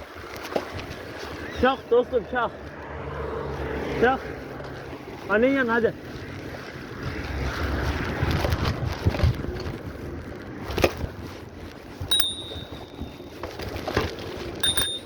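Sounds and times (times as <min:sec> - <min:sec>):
high-pitched ring: 0:12.1 - 0:13.3, 0:14.6 - 0:15.0.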